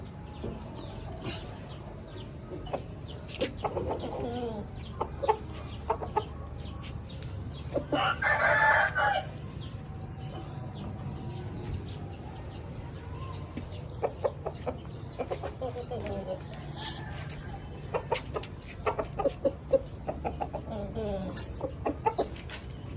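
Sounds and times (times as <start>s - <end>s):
chickens clucking: 0.2s - 22.9s
rooster crow: 7.9s - 9.3s.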